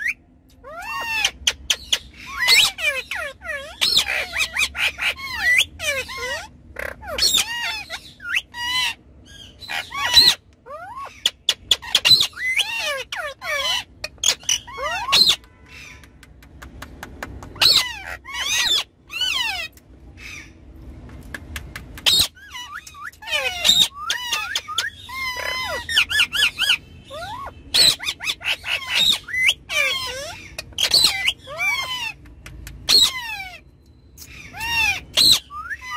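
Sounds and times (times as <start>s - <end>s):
parrots shrill screeches: 0.0s - 16.0s, 17.6s - 20.6s, 22.0s - 32.2s, 32.8s - 35.9s
parrots whistled chatter: 0.0s - 16.2s, 17.4s - 20.6s, 22.0s - 35.9s
parakeets squawking and chirping: 0.0s - 35.9s
sharp clicks: 16.0s - 17.6s, 21.0s - 22.1s.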